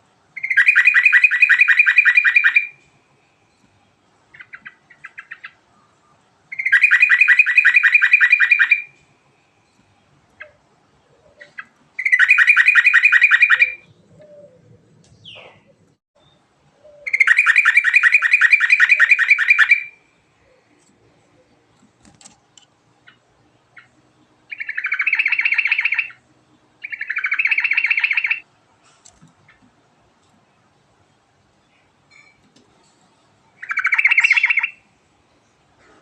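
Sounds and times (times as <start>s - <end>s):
bulbul singing: 0.4s - 2.8s, 3.4s - 9.0s, 11.3s - 20.7s, 23.1s - 26.2s, 26.8s - 28.4s, 33.6s - 34.9s.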